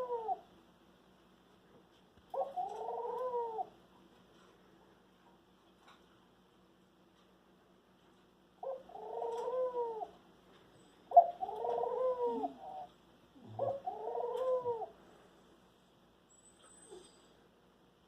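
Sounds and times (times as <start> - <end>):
bird calling: 2.3 - 3.8, 8.6 - 10.2, 11.1 - 15.0.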